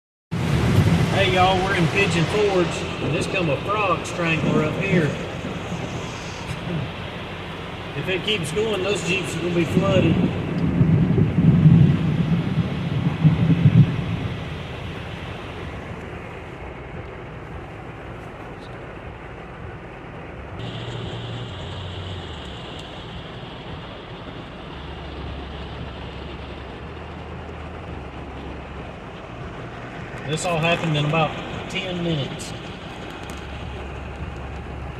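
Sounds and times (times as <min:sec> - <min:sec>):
loud low rumble: 0:00.3 - 0:18.1
torrential rain hissing: 0:00.3 - 0:34.9.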